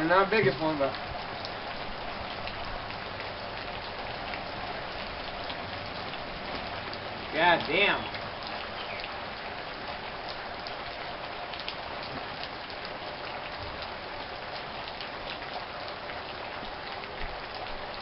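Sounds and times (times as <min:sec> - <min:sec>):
rain falling: 0:00.0 - 0:18.0.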